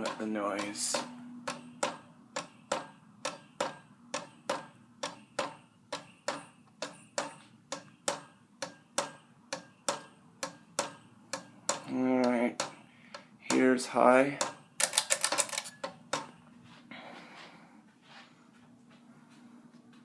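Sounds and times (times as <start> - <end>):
sharp regular clicking: 0.0 - 16.4
ceiling fan running: 0.0 - 20.0
faint hum: 16.3 - 20.0.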